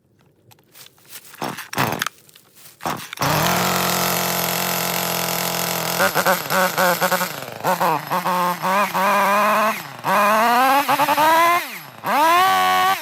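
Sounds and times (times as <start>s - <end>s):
starter cord pulls: 0.5s - 13.0s
chainsaw engine idling: 2.8s - 13.0s.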